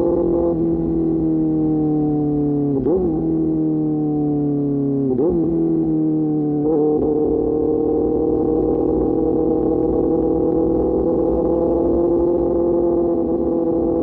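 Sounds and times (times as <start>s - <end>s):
motorcycle engine while riding: 0.0s - 14.0s.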